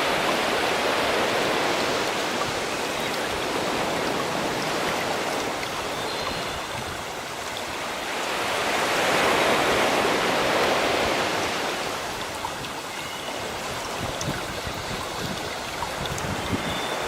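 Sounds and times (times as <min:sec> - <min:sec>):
sea waves washing ashore: 0:00.0 - 0:17.0.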